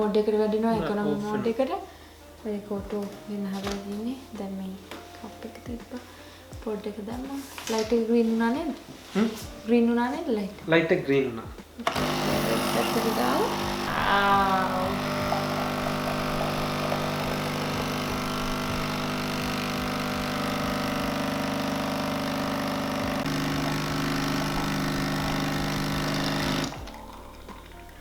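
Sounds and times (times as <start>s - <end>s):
coffee machine pump humming: 11.8s - 28.0s.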